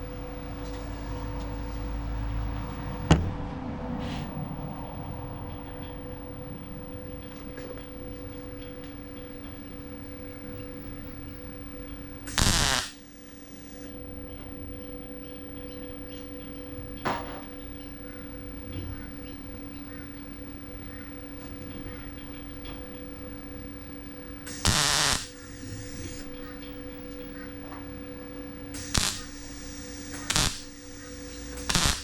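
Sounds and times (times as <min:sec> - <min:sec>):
workshop hum: 0:00.0 - 0:32.0
loud burst of noise: 0:12.2 - 0:13.9, 0:24.4 - 0:26.2, 0:28.7 - 0:32.0.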